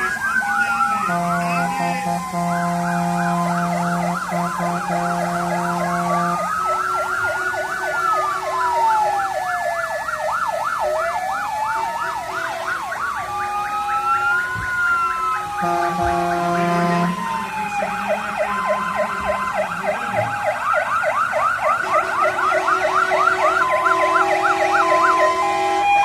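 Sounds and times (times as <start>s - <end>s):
horn blasts: 0.0s - 8.6s, 15.4s - 20.5s, 21.8s - 26.0s
fire engine sirens: 0.0s - 26.0s.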